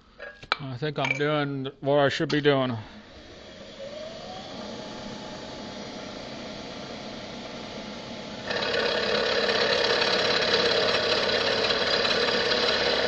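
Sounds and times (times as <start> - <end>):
milling machine running: 3.0 - 13.0
fast rattling mechanical noise: 8.4 - 13.0.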